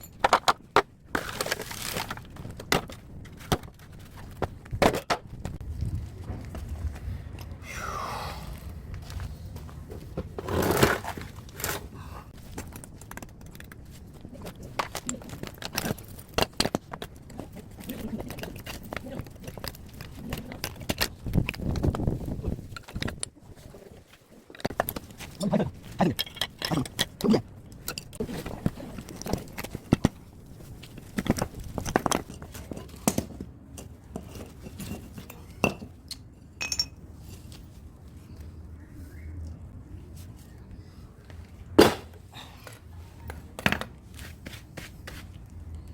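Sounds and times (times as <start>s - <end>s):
metal tools clinking and knocking: 0.0s - 0.7s, 31.2s - 37.4s
metal parts clanking and scraping: 24.4s - 37.6s
sharp metal knocks and clinks: 34.7s - 37.0s.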